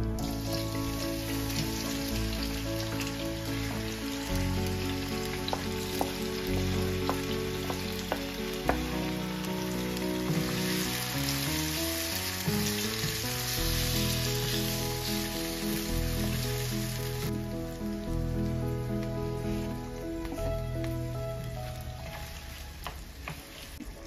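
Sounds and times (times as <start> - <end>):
background music: 0.0 - 24.0
tomatoes sizzling in hot oil: 0.0 - 24.0
spatula tapping pan: 5.4 - 9.1.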